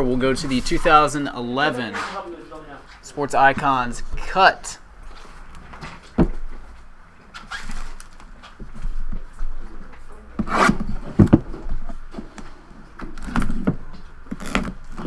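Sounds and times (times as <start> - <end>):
cardboard rubbing and scraping: 10.4 - 11.4.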